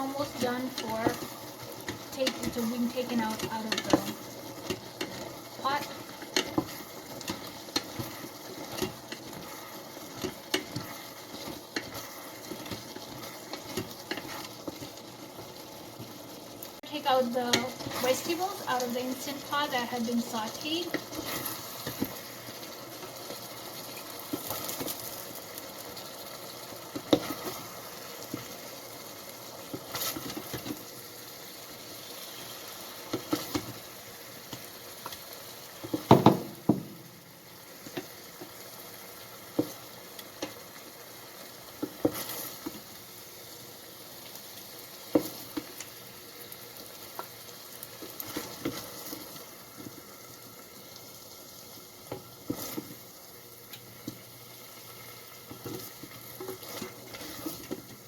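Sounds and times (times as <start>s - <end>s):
utensil scraping a pot: 0.0s - 15.0s
vegetables sizzling in a pot: 0.0s - 58.0s.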